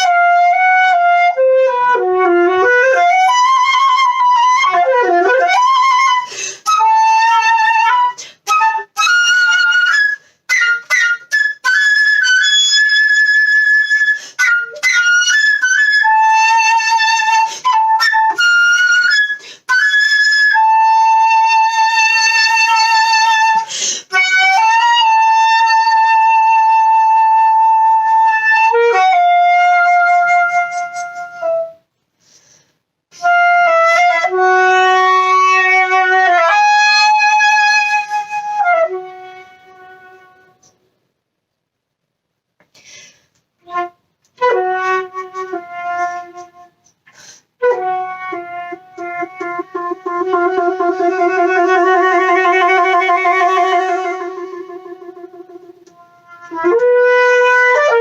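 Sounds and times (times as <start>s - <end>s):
solo flute melody: 0.0s - 31.9s, 33.1s - 40.8s, 43.6s - 58.0s.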